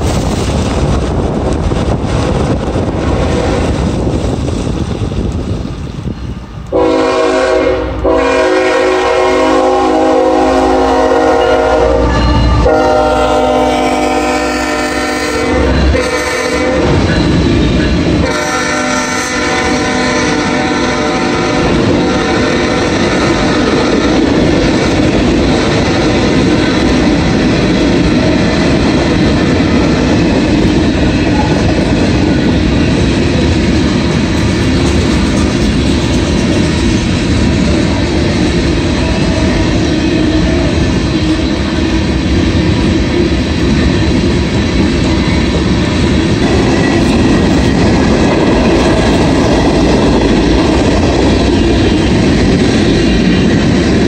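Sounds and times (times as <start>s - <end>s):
train rumbling and clacking: 0.0s - 54.0s
wind noise on microphone: 0.0s - 54.0s
locomotive horn blasts: 6.7s - 17.1s, 18.2s - 24.2s.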